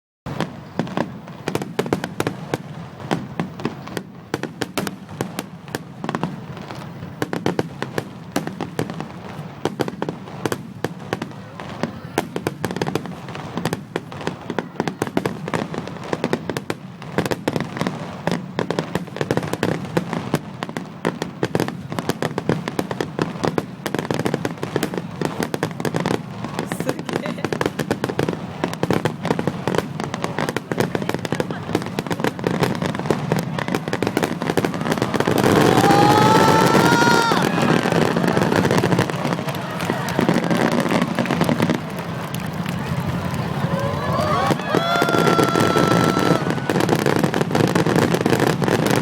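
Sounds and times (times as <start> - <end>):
rapid cracking and popping: 33.9 - 47.2.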